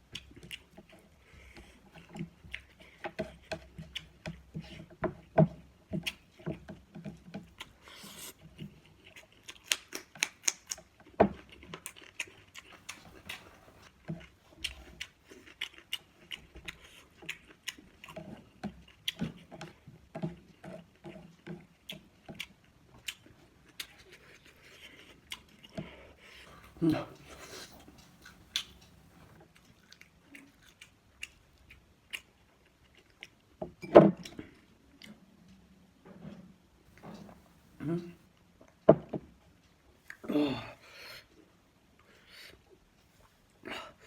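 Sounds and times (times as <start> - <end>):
chewing with wet mouth clicks: 0.0 - 4.8, 6.0 - 33.6.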